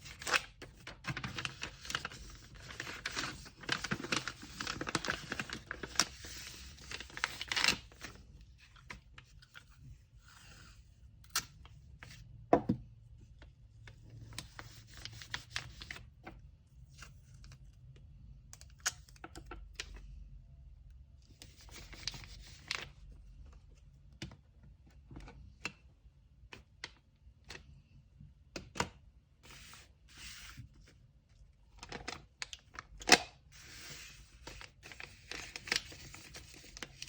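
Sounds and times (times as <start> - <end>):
paper rustling and crinkling: 0.0 - 10.6, 13.9 - 16.1, 31.8 - 37.0.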